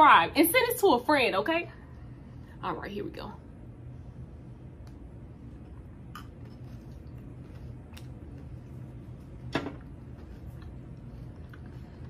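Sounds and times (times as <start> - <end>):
chewing crunchy cereal: 5.7 - 8.9, 10.0 - 12.0.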